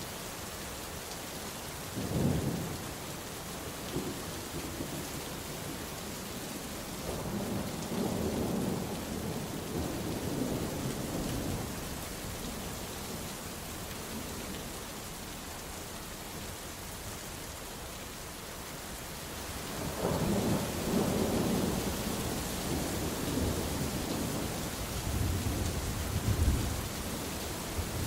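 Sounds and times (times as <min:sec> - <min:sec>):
steady rain hiss: 0:00.0 - 0:28.0
rolling thunder rumble: 0:07.0 - 0:12.6, 0:19.7 - 0:28.0.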